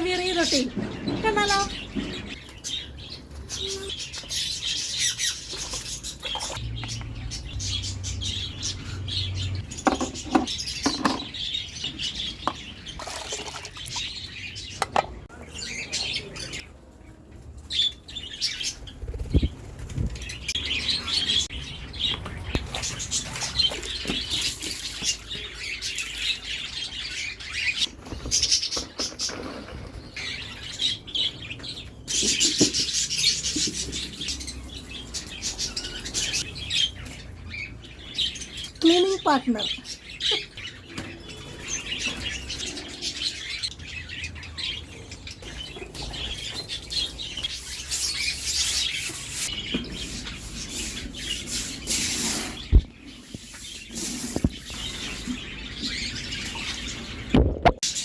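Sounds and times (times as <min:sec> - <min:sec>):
small birds chirping: 0:00.0 - 0:58.0
wings flapping: 0:18.9 - 0:20.4.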